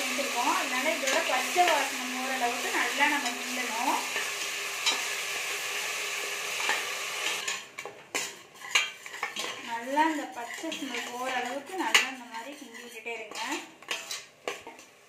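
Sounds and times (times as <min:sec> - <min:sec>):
paste sizzling in oil: 0:00.0 - 0:15.0
metal spoon scraping a pot: 0:00.2 - 0:05.1, 0:06.5 - 0:14.9.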